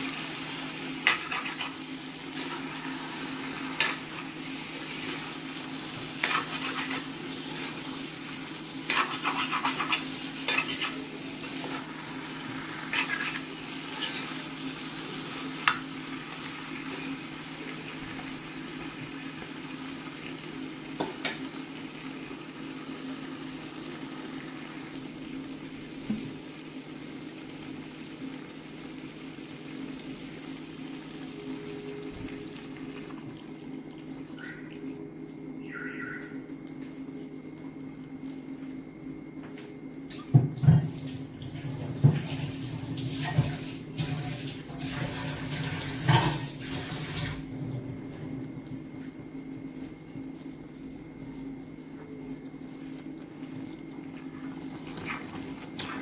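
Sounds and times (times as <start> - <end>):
food sizzling in a pan: 0.0 - 34.9, 40.2 - 47.5.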